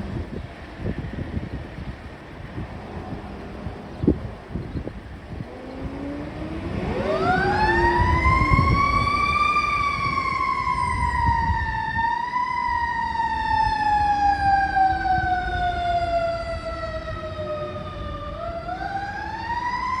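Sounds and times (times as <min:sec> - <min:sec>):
truck engine rumbling: 0:00.0 - 0:20.0
fire truck siren wailing: 0:05.3 - 0:20.0.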